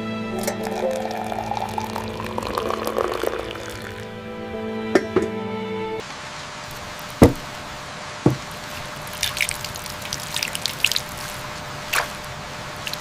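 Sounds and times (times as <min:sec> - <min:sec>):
held music notes: 0:00.0 - 0:06.0
rain hiss: 0:00.4 - 0:04.1, 0:06.0 - 0:13.0
small high drips: 0:00.4 - 0:04.1, 0:09.0 - 0:12.2
water trickling and dripping: 0:00.4 - 0:04.1, 0:08.5 - 0:13.0
sharp knocks: 0:07.2 - 0:07.5, 0:08.3 - 0:08.5.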